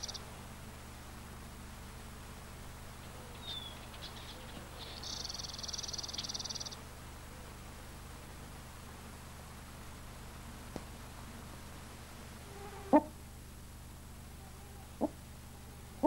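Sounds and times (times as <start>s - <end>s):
bird singing ticks and buzz: 0.0s - 0.3s, 3.0s - 6.9s.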